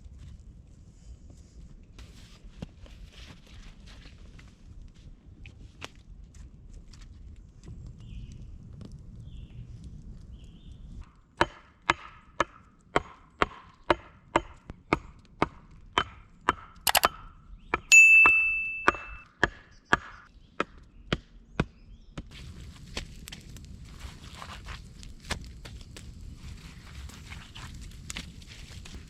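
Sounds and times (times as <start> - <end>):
axe chopping wood: 11.4 - 17.1, 18.8 - 21.3
metallic ringing strike: 17.9 - 19.2.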